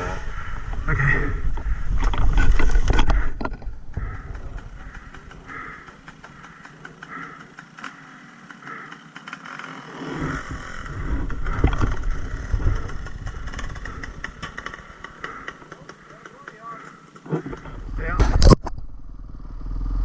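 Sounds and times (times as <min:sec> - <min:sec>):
dirt bike engine revving: 0:04.0 - 0:18.4.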